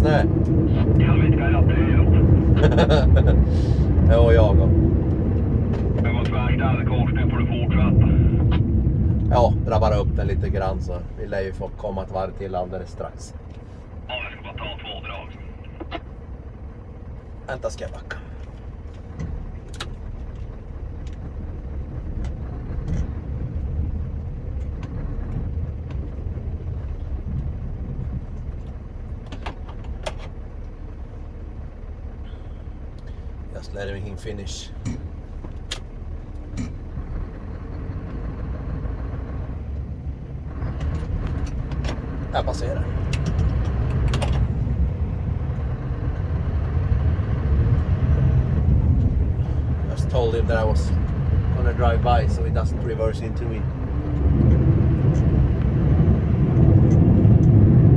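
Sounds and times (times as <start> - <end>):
truck diesel engine rumbling: 0.0 - 57.9.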